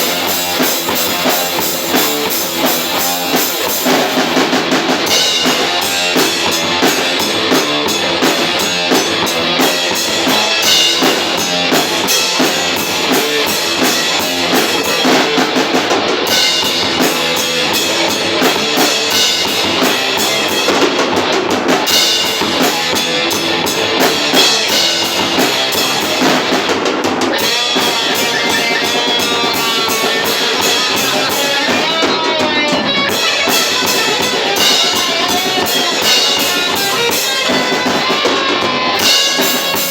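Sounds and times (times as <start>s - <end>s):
bass drum and rimshots: 0.0s - 39.9s
electric guitar: 0.0s - 39.9s
metal band playing live: 0.0s - 39.9s.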